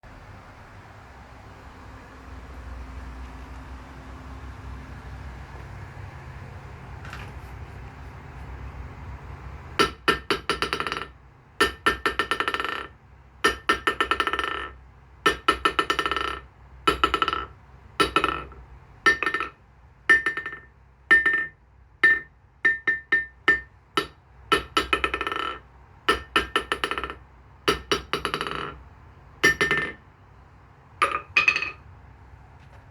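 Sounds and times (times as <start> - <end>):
hammer striking ringing anvil: 17.0 - 28.7.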